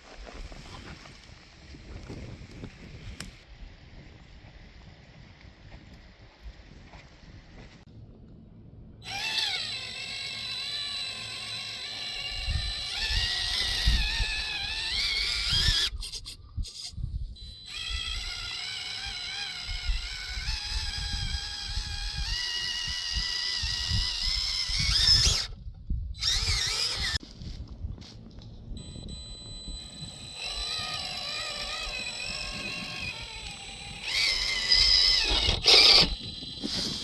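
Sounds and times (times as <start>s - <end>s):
small electric motor whining: 9.0s - 27.2s, 28.8s - 37.0s.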